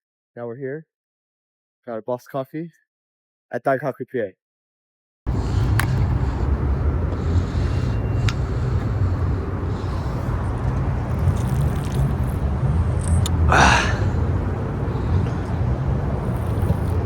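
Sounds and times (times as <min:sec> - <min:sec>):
traffic rumble: 0:05.3 - 0:17.0.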